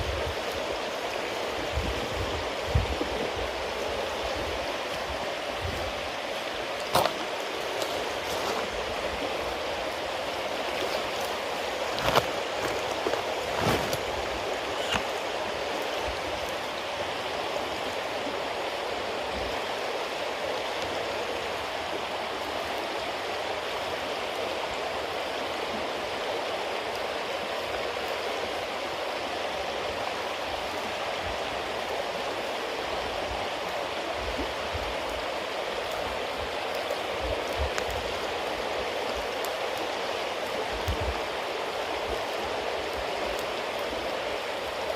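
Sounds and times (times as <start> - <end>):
fire crackling: 0.0 - 25.1, 30.0 - 44.9
fire popping: 10.5 - 15.3, 35.8 - 41.3.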